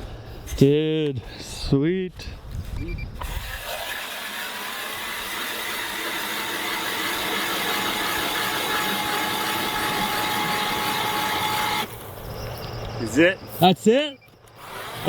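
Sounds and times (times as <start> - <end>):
drill bit cutting ice: 3.2 - 11.9, 14.5 - 15.0
ice auger motor whine: 3.2 - 11.9, 14.5 - 15.0.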